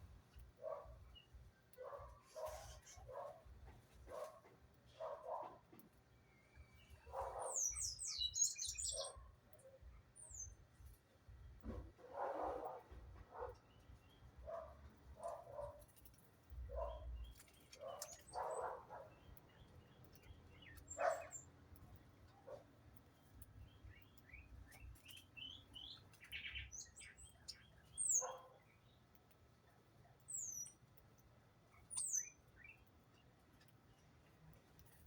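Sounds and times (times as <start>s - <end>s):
small bird chirps: 6.2s - 10.6s, 16.7s - 21.6s, 23.1s - 29.1s, 30.2s - 30.9s, 31.7s - 34.1s.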